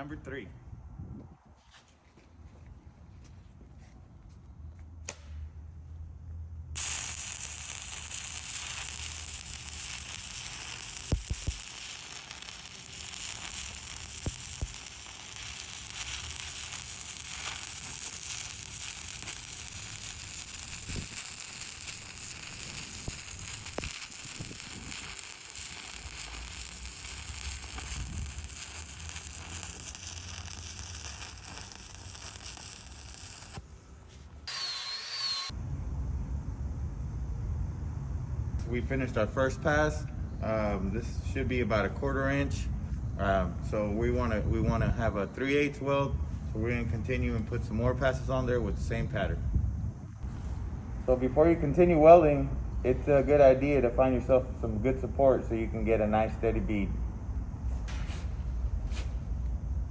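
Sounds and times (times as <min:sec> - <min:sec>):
sharp welding pops: 0:05.0 - 0:05.5, 0:06.8 - 0:33.8, 0:57.6 - 0:59.6
welding arc crackling: 0:06.8 - 0:33.7.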